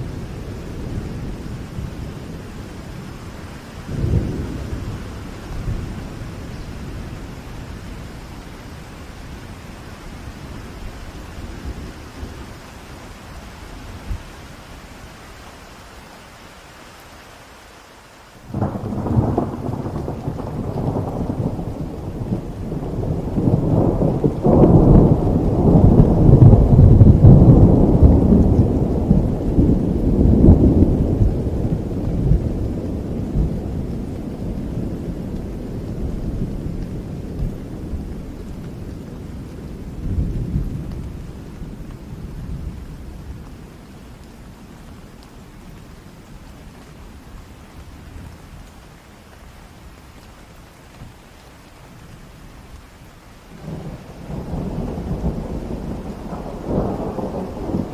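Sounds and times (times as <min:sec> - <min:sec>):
thunder rumbling: 0:00.0 - 0:12.9, 0:18.5 - 0:44.8, 0:53.5 - 0:57.9
steady rain: 0:00.0 - 0:57.9.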